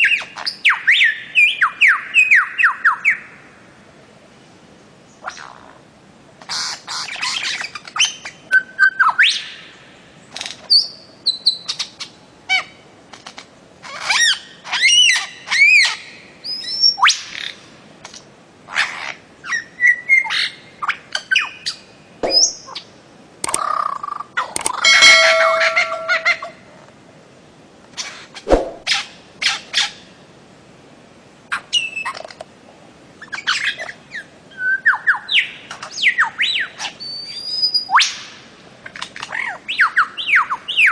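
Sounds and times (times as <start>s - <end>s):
sharp clicks: 23.4s - 23.6s, 24.6s - 26.4s.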